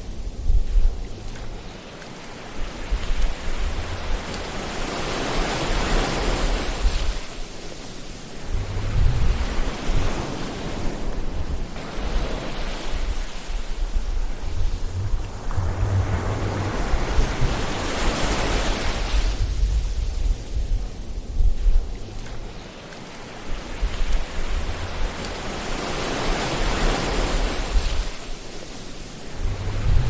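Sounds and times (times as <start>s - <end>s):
ocean waves washing in: 0.0s - 30.0s.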